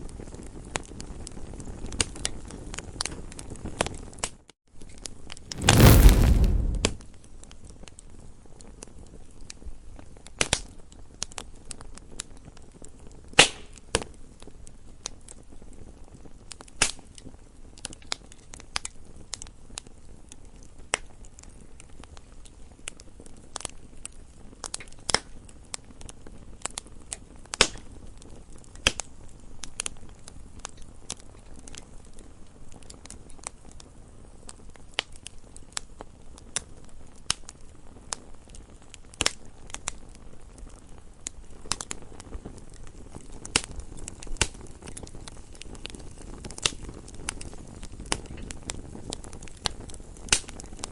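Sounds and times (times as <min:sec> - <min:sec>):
wood fire crackling and popping: 0:05.5 - 0:07.0, 0:22.2 - 0:50.9.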